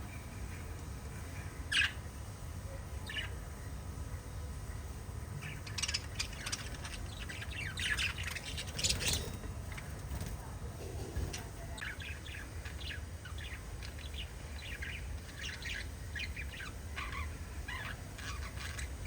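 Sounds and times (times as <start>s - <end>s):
steady low hum: 0.0s - 19.0s
parrots chirping: 1.5s - 2.1s, 3.0s - 3.4s, 5.4s - 10.1s, 11.3s - 19.0s.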